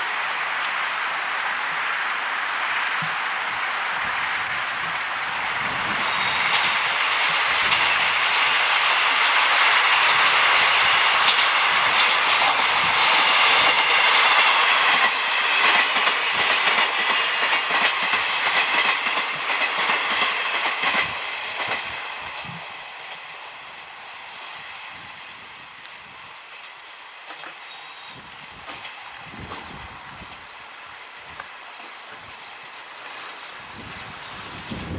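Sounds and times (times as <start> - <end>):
train running noise: 0.0 - 34.9
wheel clacks over rail joints: 28.6 - 29.8.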